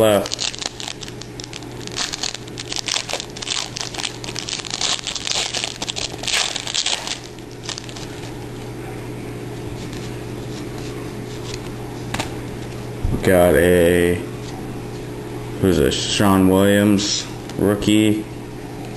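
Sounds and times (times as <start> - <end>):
wrapper crinkling and tearing: 0.0 - 8.3
low hum: 0.0 - 18.9.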